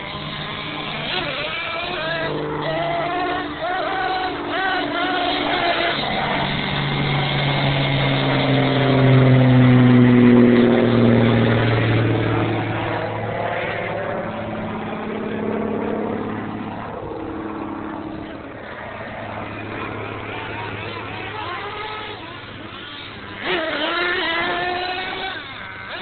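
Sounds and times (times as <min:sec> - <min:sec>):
toy truck motor running: 0:00.0 - 0:09.8, 0:19.8 - 0:26.0.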